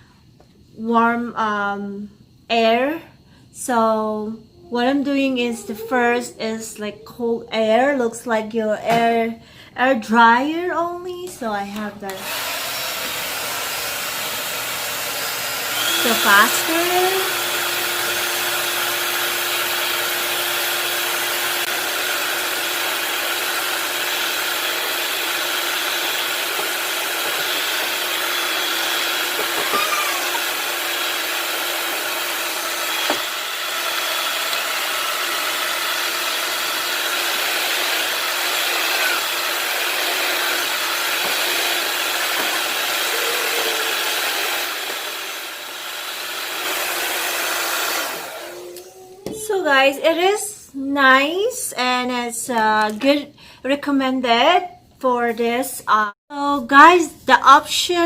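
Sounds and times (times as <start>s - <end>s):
hair dryer blowing air: 12.1s - 49.1s.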